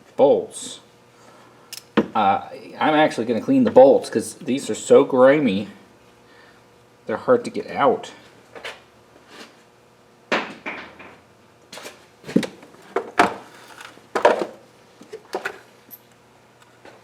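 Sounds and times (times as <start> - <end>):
metal parts clunking and scraping: 11.7 - 15.7.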